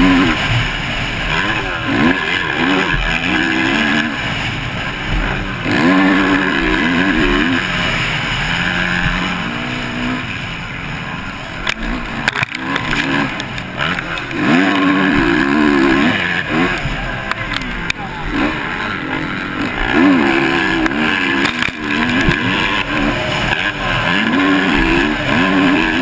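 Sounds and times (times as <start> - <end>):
motocross bike engine revving: 0.0 - 26.0.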